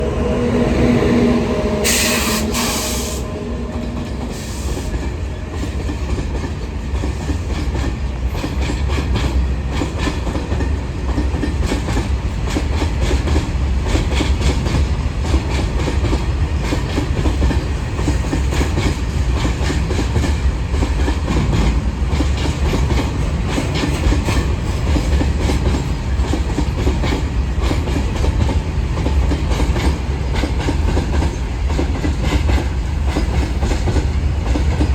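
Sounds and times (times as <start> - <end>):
train low rumble: 0.0 - 34.9
train wheels clicking: 1.8 - 34.9.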